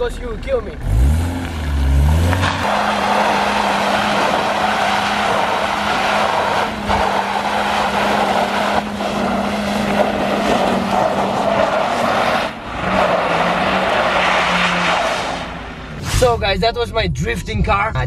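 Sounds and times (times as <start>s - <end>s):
car engine at high revs: 0.7s - 16.0s
tyres hissing on wet asphalt: 2.2s - 16.0s.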